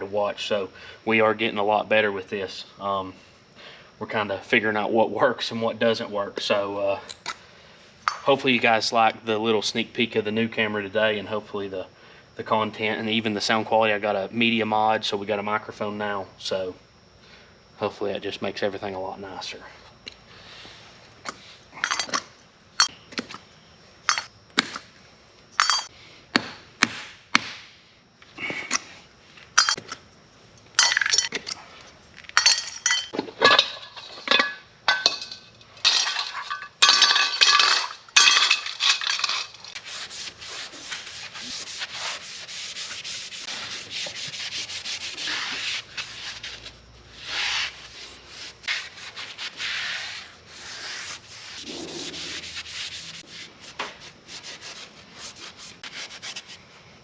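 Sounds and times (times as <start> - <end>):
hand sanding rubbing strokes: 39.6 - 56.7.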